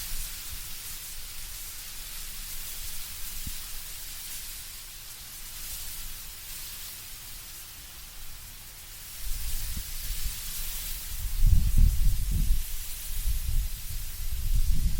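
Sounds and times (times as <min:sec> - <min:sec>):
leaves rustling in wind: 0:00.0 - 0:14.9
low rumble of wind: 0:09.1 - 0:14.9.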